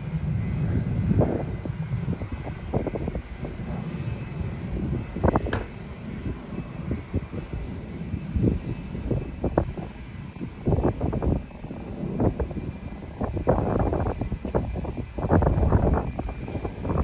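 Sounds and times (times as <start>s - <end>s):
airliner engines rumbling: 0.0s - 17.0s
low thumps: 5.5s - 5.8s
sharp click: 5.5s - 5.8s.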